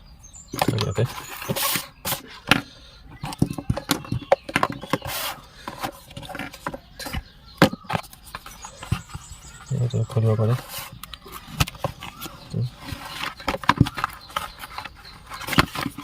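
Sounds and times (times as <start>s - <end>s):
cardboard and plastic rustles: 0.6s - 16.0s.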